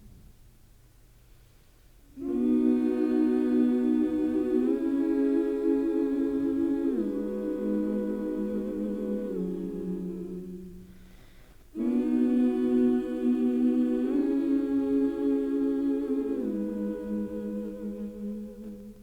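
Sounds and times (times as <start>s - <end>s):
hummed vocal chords: 2.1s - 19.0s.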